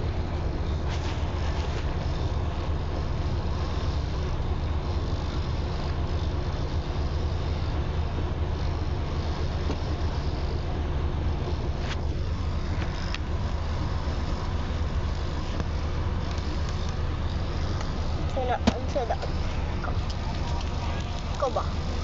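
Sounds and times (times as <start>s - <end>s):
motor vehicle road and engine noise: 0.0s - 22.0s.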